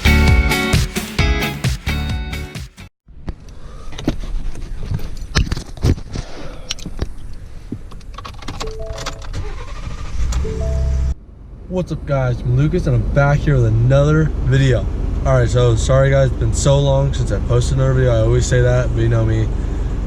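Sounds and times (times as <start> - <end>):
low steady rumble: 8.7 - 20.0
short steady tone: 10.4 - 11.2.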